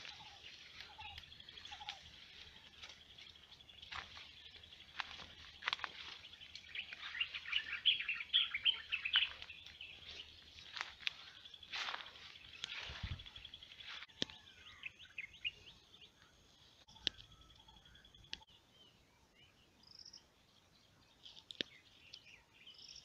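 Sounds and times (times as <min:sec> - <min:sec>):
high bird chirps: 0:00.0 - 0:16.2.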